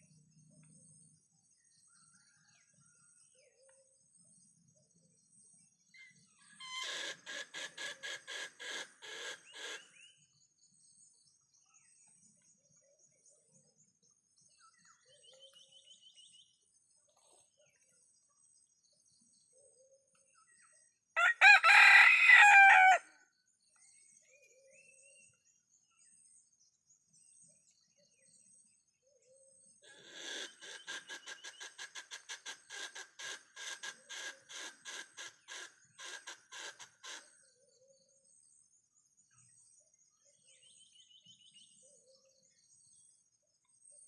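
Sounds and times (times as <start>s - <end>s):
rooster crowing: 21.2s - 23.2s.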